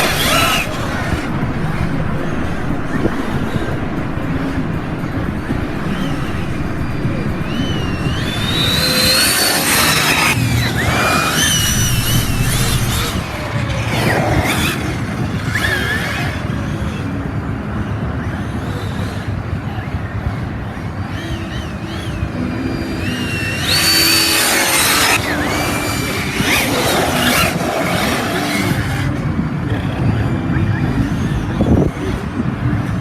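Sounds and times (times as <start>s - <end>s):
electric motors whining: 0.0s - 13.9s
steady rumbling noise: 0.0s - 13.9s.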